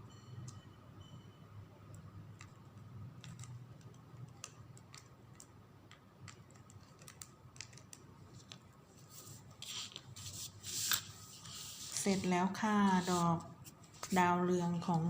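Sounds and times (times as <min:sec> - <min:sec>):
beads clicking and tapping: 0:01.8 - 0:08.7.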